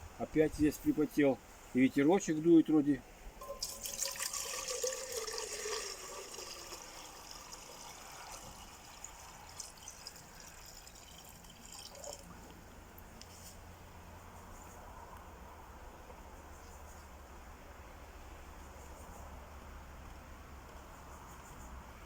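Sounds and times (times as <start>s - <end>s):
water pouring and trickling: 3.4s - 13.1s
water dripping: 3.4s - 13.3s.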